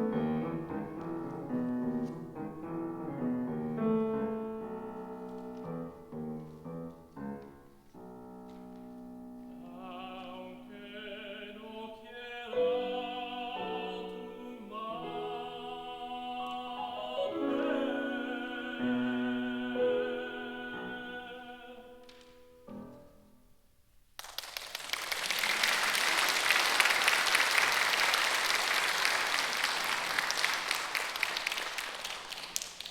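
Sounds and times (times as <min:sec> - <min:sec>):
piano accompaniment: 0:00.0 - 0:23.6
tenor singing with vibrato: 0:09.5 - 0:22.1.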